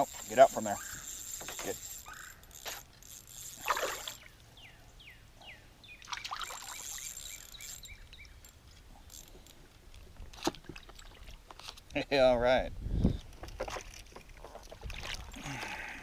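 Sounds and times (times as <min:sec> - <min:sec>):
water splashing: 0:03.6 - 0:04.3, 0:06.0 - 0:07.1.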